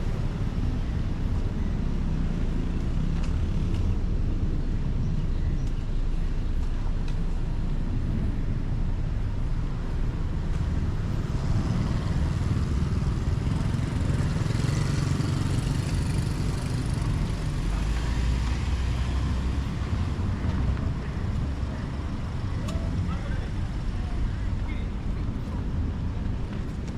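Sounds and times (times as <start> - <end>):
rumble of moving vehicles: 0.0 - 26.9.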